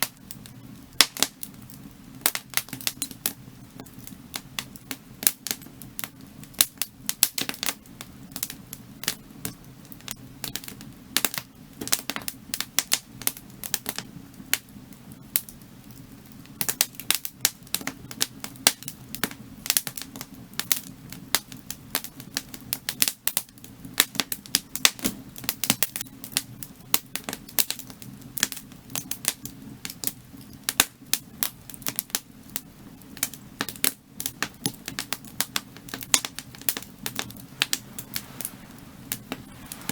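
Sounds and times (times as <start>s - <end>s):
wood fire crackling and popping: 0.0s - 39.9s
steady low hum: 25.1s - 39.9s.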